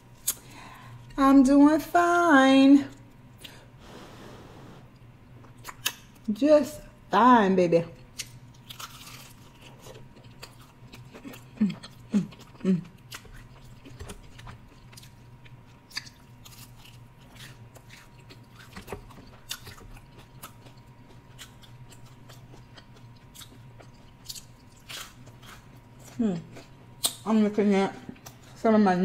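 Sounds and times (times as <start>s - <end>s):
short hums: 3.8s - 4.9s
chewing and crunching fried food: 7.8s - 28.7s.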